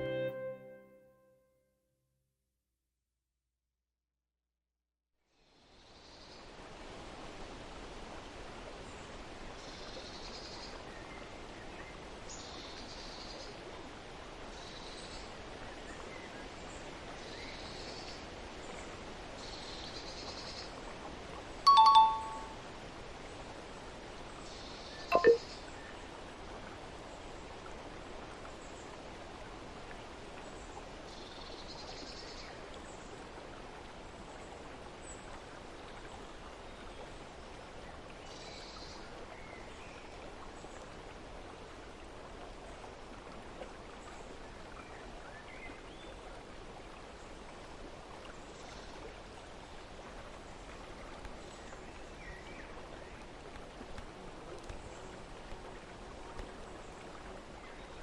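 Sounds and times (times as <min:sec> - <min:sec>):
softly running water: 0:05.3 - 0:58.0
faint high chirps: 0:21.7 - 0:22.6, 0:25.1 - 0:25.4.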